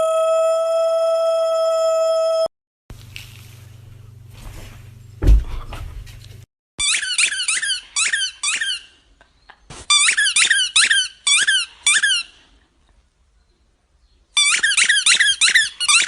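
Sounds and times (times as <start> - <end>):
rapid high-pitched squeaks: 6.8 - 9.0, 14.4 - 16.0.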